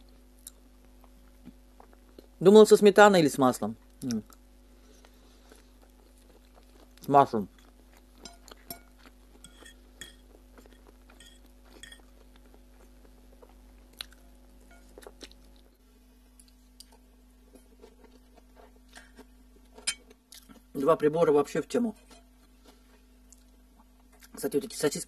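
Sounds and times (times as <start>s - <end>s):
person chewing noodles: 0.1s - 2.4s, 4.0s - 20.7s
fork and spoon clinking on plate: 7.6s - 12.1s.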